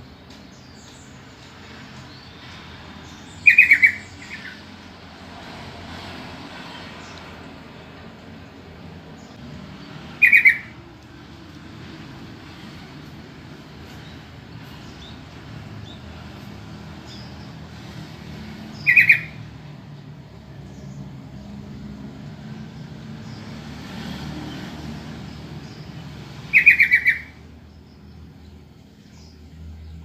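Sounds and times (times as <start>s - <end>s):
bird calling repeated notes: 3.4s - 4.6s, 10.2s - 10.8s, 18.8s - 19.4s, 26.5s - 27.4s.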